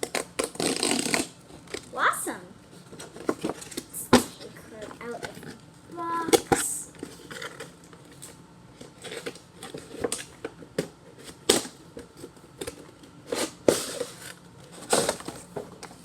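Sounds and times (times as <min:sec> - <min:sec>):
clicks taps and rustles: 0:02.8 - 0:10.9
box being opened and handled: 0:02.9 - 0:16.0.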